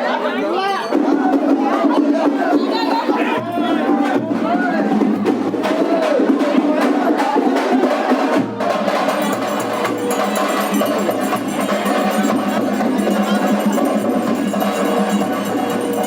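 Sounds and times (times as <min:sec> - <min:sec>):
drums fast rhythm: 0:00.5 - 0:16.0.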